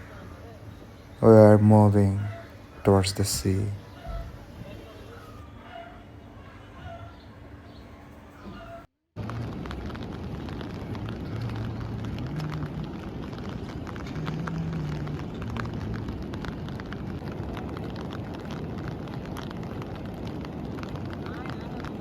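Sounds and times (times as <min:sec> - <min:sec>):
faint low hum: 0:00.0 - 0:09.8
steady rain: 0:09.2 - 0:22.0.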